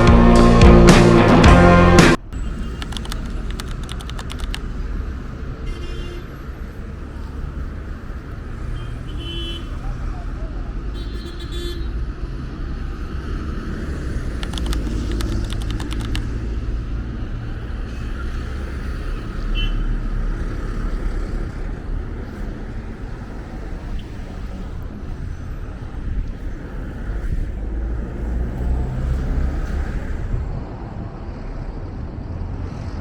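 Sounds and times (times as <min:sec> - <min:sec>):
road traffic rumble: 0:00.0 - 0:33.0
faint clicks: 0:02.8 - 0:04.7, 0:14.4 - 0:16.4.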